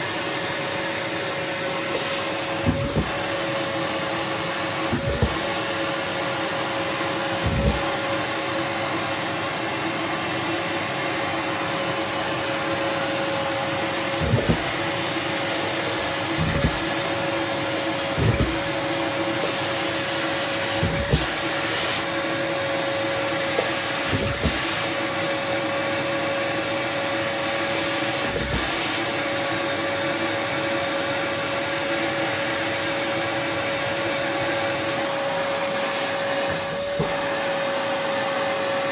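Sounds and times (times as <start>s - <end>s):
vacuum cleaner whine: 0.0s - 38.9s
knocks and thuds: 2.0s - 3.4s, 4.8s - 5.7s, 7.4s - 8.0s, 14.1s - 14.9s, 16.0s - 17.1s, 18.1s - 18.8s, 20.7s - 21.6s.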